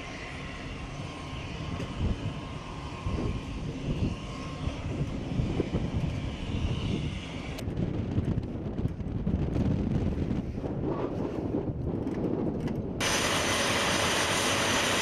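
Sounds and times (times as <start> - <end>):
jet engines whining: 0.0 - 7.7, 13.0 - 15.0
wind buffeting microphone: 0.1 - 15.0.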